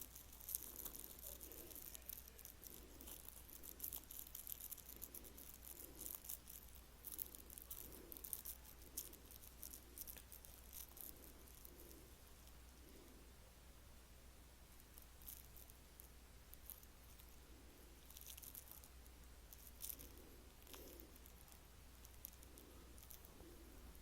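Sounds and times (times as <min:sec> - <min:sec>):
cat toy rattling and clicking: 0:00.0 - 0:12.0.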